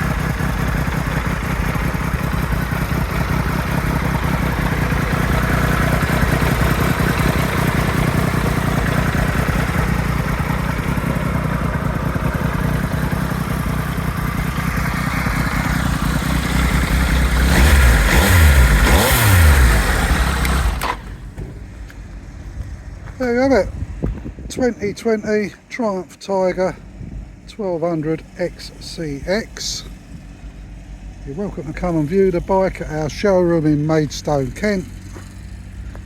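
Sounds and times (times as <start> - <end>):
motorcycle engine revving: 0.0 - 24.2
motorcycle engine idling: 0.0 - 36.0.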